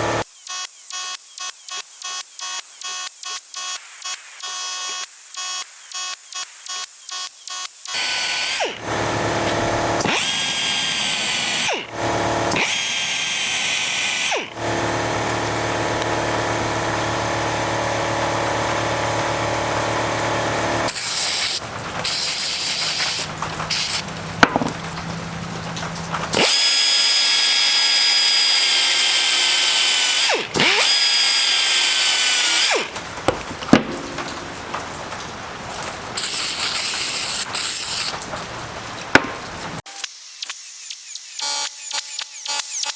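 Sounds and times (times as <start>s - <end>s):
electric power tool running: 0.0s - 1.2s, 7.9s - 34.9s, 36.2s - 38.2s.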